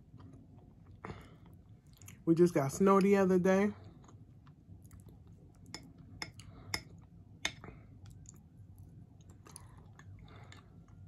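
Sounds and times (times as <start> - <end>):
person chewing food: 0.0 - 2.2, 3.8 - 11.0.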